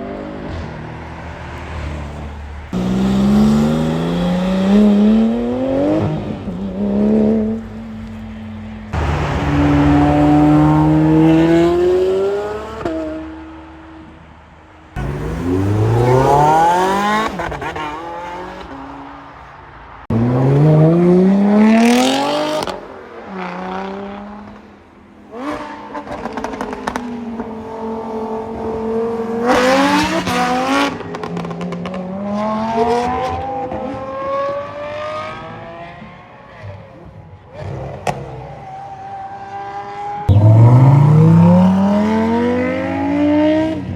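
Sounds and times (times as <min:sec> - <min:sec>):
car engines accelerating hard: 0:00.0 - 0:19.4, 0:20.0 - 0:38.6, 0:39.2 - 0:43.9.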